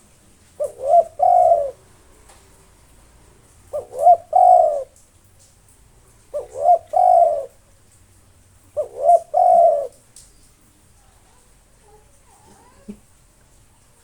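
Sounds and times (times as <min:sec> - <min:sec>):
dove cooing: 0:00.0 - 0:02.8, 0:03.4 - 0:05.0, 0:06.2 - 0:07.6, 0:08.6 - 0:10.1.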